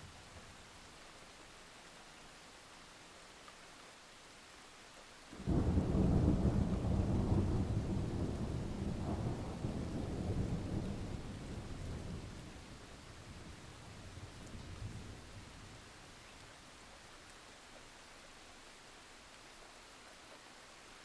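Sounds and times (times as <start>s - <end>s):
steady rain: 0.0s - 21.0s
thunder clap and rumble: 5.4s - 12.7s.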